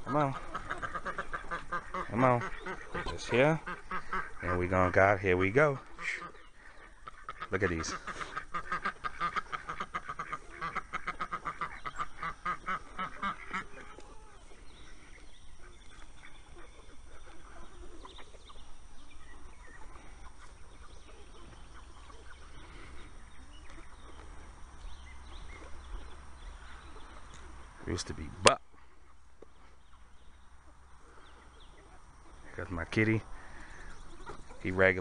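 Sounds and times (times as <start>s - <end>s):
ducks quacking: 0.0s - 35.0s.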